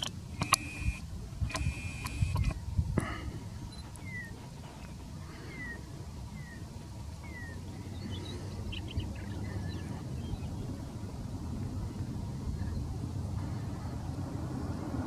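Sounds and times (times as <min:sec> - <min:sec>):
steady low rumble: 0:00.0 - 0:15.0
bird whistling: 0:04.0 - 0:04.3
high bird chirps: 0:04.0 - 0:04.3.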